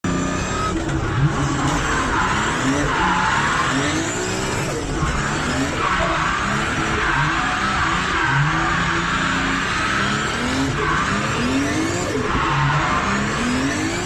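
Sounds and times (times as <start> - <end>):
car engine revving: 0.0 - 14.0
tyres squealing and skidding: 0.1 - 14.0.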